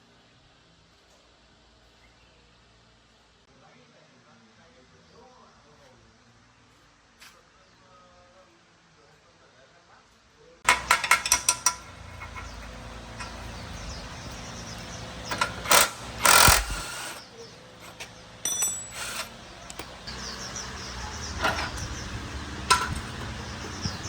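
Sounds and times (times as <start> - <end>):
ringing metallic clinks: 18.4 - 20.2.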